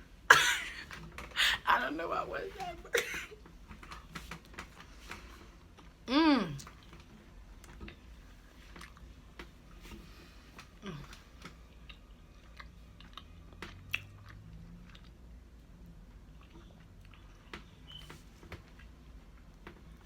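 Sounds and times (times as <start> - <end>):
person chewing candy: 8.7 - 9.2, 10.7 - 17.6.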